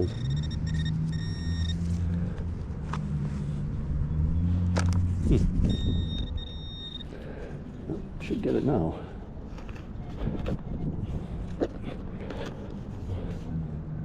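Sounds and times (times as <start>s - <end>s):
metal detector beeps: 0.0s - 1.9s, 5.6s - 7.1s
vehicle engine humming: 0.0s - 14.0s.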